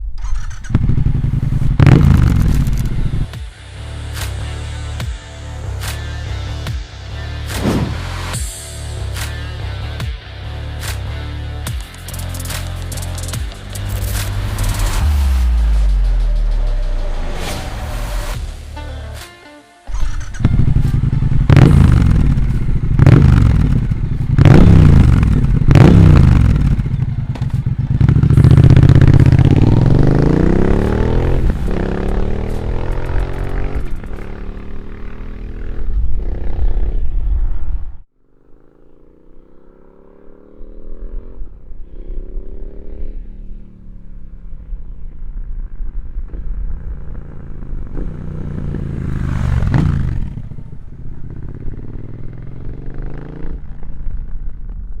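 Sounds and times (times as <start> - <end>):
motorcycle engine revving: 0.0 - 3.5, 19.9 - 38.1, 41.1 - 55.0.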